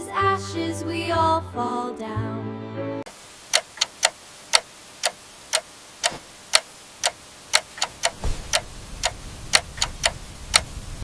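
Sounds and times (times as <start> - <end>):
clock ticking: 3.5 - 10.8.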